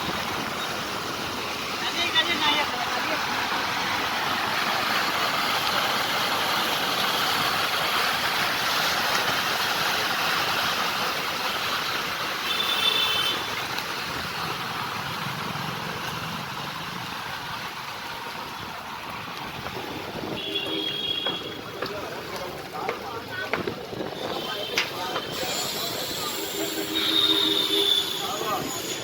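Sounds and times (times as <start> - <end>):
motor vehicle running: 13.6 - 28.0.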